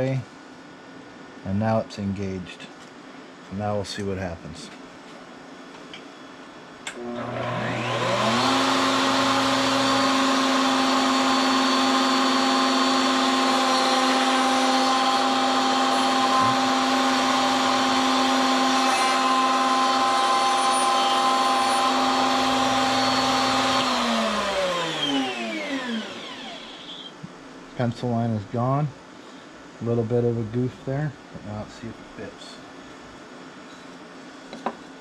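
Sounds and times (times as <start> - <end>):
electric wood router running: 7.0 - 27.1
router winding down whine: 7.0 - 27.1.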